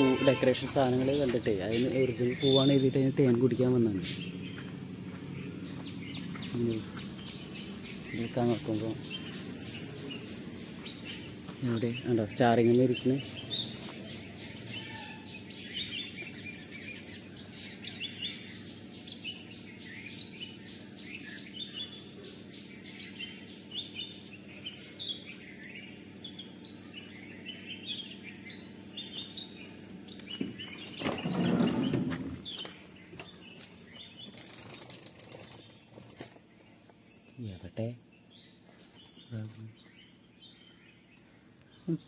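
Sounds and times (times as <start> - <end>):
bird chirping high notes: 0.0 - 3.2.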